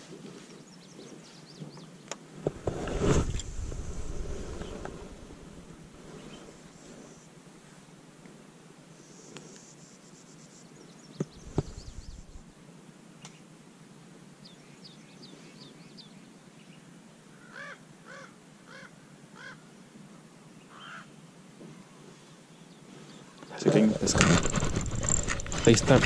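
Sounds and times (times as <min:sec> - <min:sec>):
bird calling in short calls: 0:20.7 - 0:21.1.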